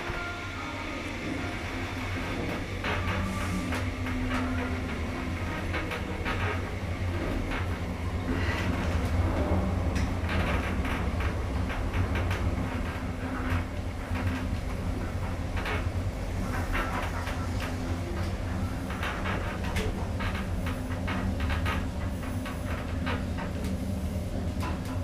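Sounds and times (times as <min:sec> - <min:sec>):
lift car rumbling in shaft: 0:00.0 - 0:25.0.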